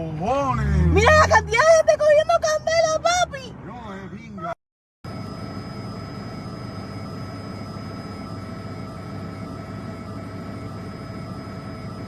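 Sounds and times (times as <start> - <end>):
helicopter engine and rotor: 5.1 - 12.0.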